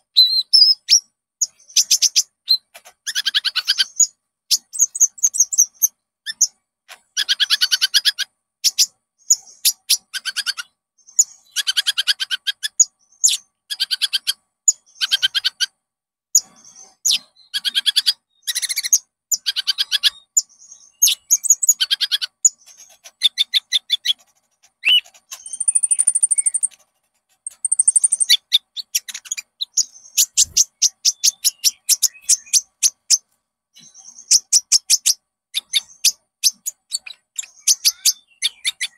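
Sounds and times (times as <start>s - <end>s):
thin high bird whistles: 0.1s - 6.5s, 16.4s - 26.8s, 27.4s - 33.2s
bird chattering trills: 0.2s - 15.8s, 16.4s - 38.9s.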